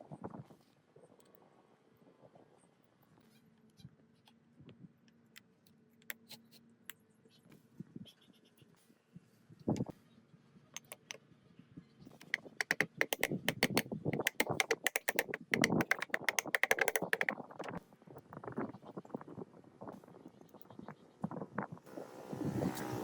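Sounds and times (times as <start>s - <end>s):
rapid clicks and knocks: 10.8s - 11.2s, 12.2s - 17.8s.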